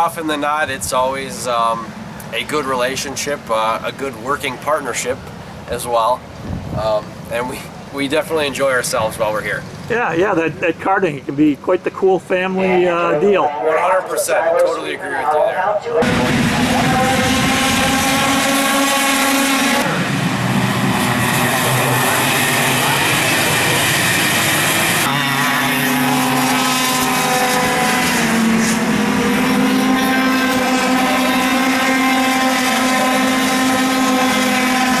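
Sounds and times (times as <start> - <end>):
kart engines at high revs: 16.0 - 35.0.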